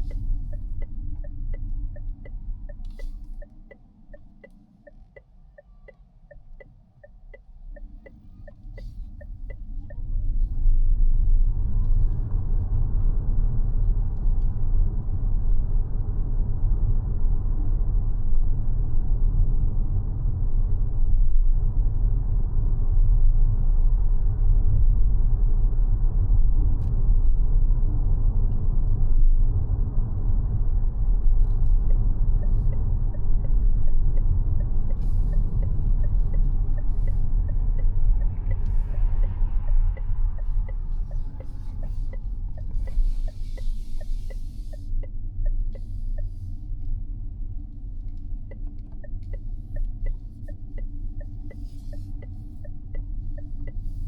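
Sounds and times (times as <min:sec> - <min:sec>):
faint regular tick: 0:00.0 - 0:10.5, 0:31.4 - 0:47.0, 0:47.6 - 0:54.0
road and tyre rumble: 0:00.0 - 0:54.0.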